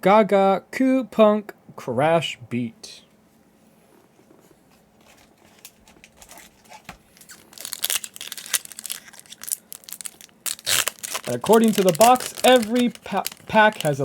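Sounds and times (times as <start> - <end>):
plastic foil pack tearing and crinkling: 5.0 - 14.0.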